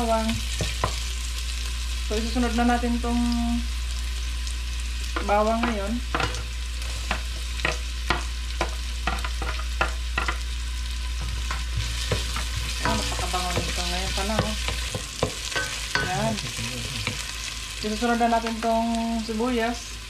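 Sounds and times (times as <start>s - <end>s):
garlic sizzling in hot oil: 0.0s - 20.0s
wooden spoon knocking on pot: 5.2s - 6.5s, 7.1s - 10.4s, 11.2s - 16.3s.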